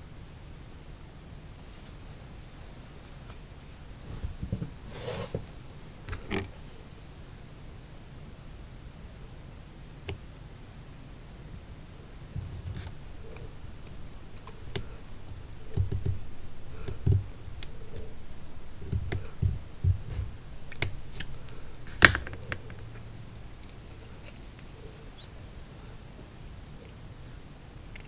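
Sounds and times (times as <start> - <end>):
soft low knocks: 12.3 - 24.3.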